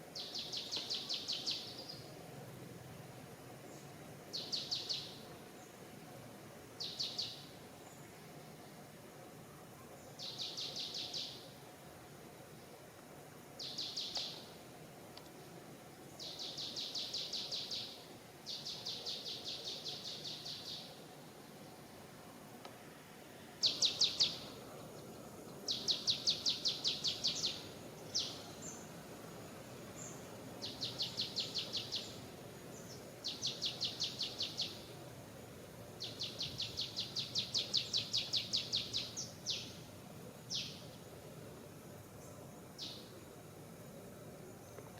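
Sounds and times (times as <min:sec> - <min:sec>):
forest background noise: 0:00.0 - 0:44.9.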